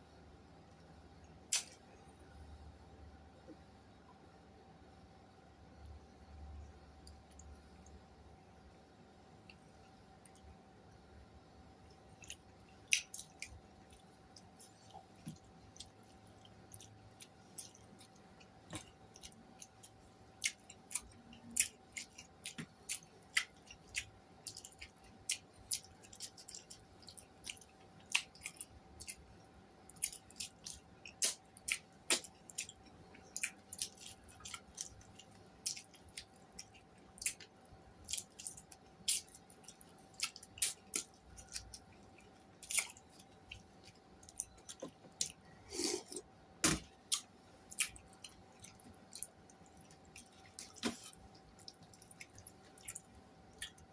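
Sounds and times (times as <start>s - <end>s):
faint steady hum: 0.0s - 53.9s
wet chewing and mouth smacks: 11.9s - 53.9s.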